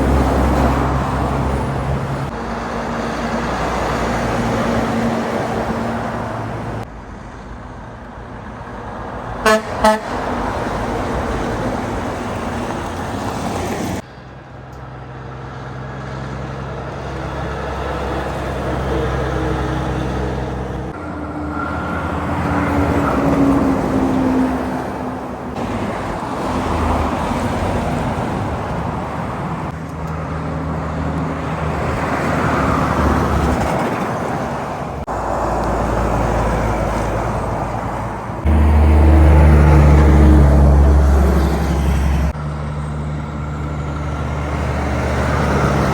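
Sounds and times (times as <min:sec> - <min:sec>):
highway traffic passing: 0:00.0 - 0:45.9
deep engine drone: 0:38.4 - 0:45.9.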